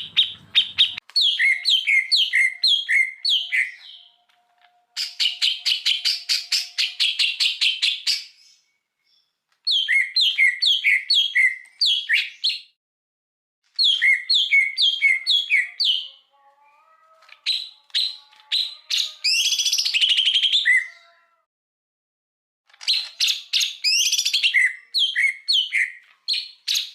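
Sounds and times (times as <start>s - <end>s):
bird ticking notes: 0.0s - 2.0s
songbird chirps and whistles: 0.0s - 12.8s, 13.8s - 16.3s, 17.2s - 21.0s, 22.8s - 26.9s.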